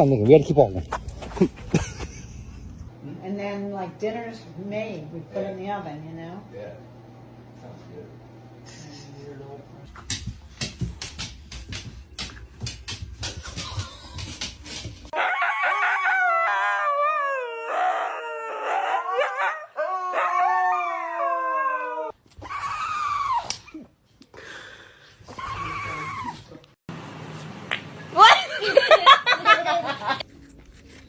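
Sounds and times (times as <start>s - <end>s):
high-pitched dog cries: 15.1s - 23.5s
dog howling: 15.1s - 23.6s, 25.3s - 26.4s.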